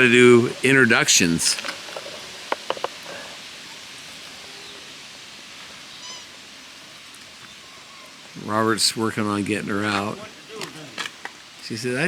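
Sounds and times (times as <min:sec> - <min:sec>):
background hiss: 0:00.0 - 0:12.0
high-pitched animal cry: 0:06.0 - 0:06.4.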